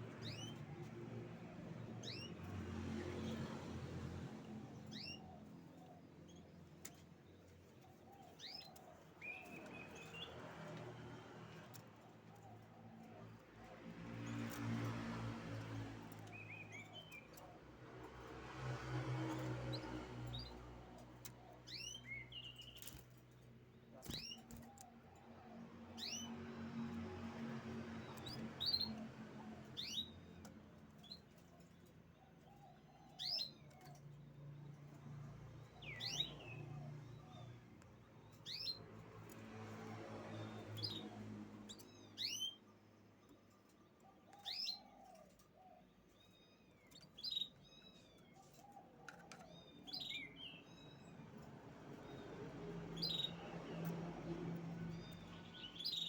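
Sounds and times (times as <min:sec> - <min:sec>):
canary chirp calls: 0:25.6 - 0:30.4, 0:31.0 - 0:34.6, 0:35.6 - 0:39.3, 0:40.3 - 0:42.7, 0:44.0 - 0:56.0.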